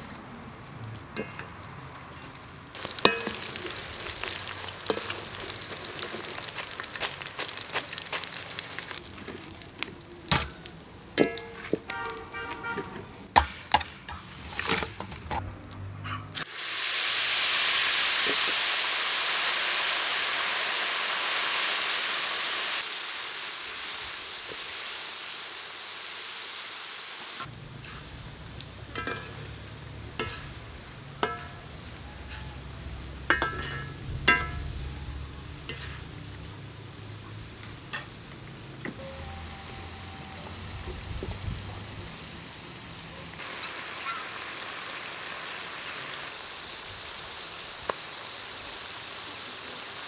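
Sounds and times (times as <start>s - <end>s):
deep-frying sizzle in oil: 2.2s - 50.0s
metal ladle clinking on wok: 3.0s - 3.5s, 11.2s - 12.9s, 28.9s - 29.5s, 30.2s - 30.6s, 31.2s - 32.6s, 33.2s - 34.8s.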